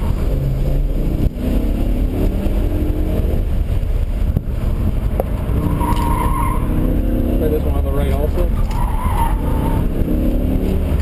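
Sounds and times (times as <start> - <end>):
car engine revving hard: 0.0 - 3.8, 4.7 - 11.0
tyres squealing: 8.1 - 9.9.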